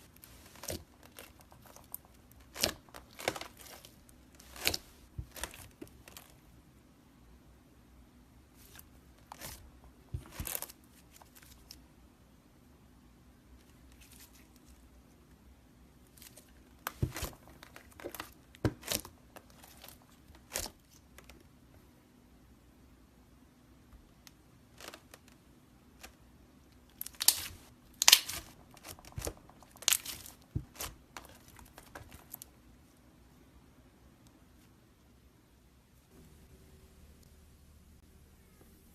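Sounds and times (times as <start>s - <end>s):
slime crackling and popping: 27.0s - 32.4s.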